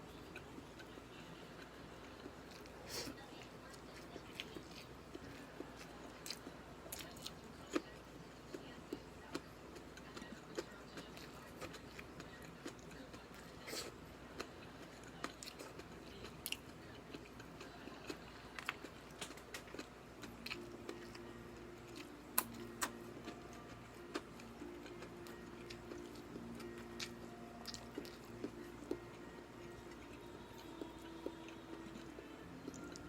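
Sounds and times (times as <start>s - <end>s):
faint low hum: 0.0s - 33.0s
person chewing and biting: 18.0s - 31.0s.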